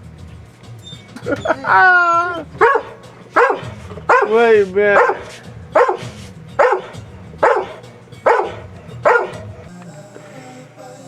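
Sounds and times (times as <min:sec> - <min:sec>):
dog barking: 0:00.8 - 0:09.7.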